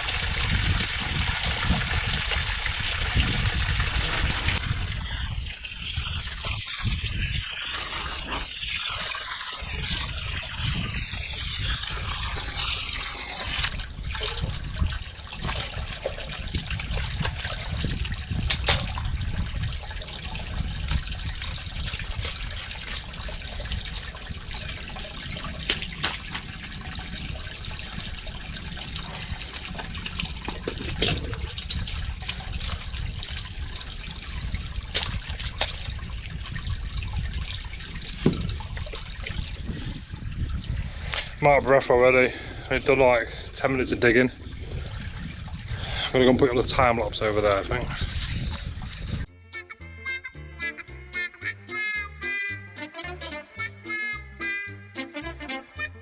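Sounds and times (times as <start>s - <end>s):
water trickling: 0.0s - 40.7s.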